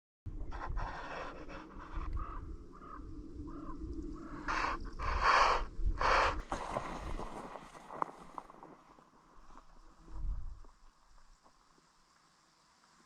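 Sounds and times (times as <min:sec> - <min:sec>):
wind on microphone: 0:00.3 - 0:08.8, 0:10.0 - 0:10.8
bird calls: 0:01.0 - 0:06.5.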